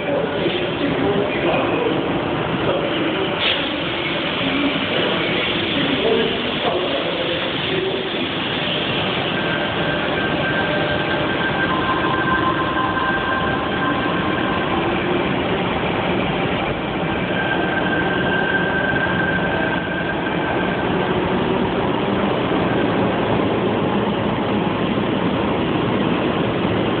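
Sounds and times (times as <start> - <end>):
electric train rumbling past: 0.0 - 27.0.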